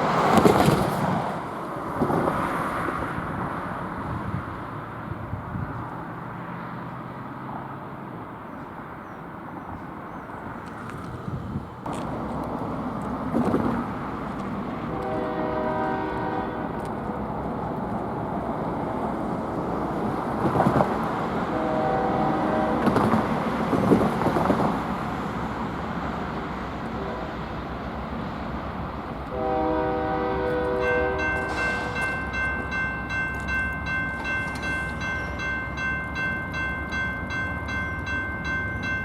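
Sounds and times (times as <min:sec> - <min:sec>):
train rumble: 0:00.0 - 0:39.0
locomotive air horn blasts: 0:14.9 - 0:17.2, 0:21.5 - 0:23.1, 0:26.9 - 0:27.5, 0:29.3 - 0:32.3.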